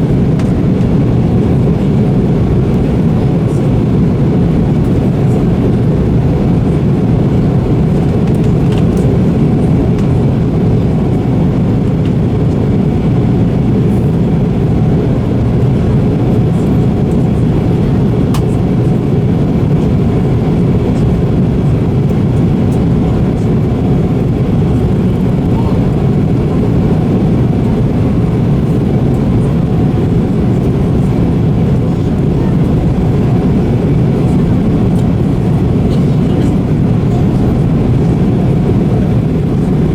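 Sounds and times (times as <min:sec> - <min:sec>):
airliner cabin drone: 0:00.0 - 0:39.9.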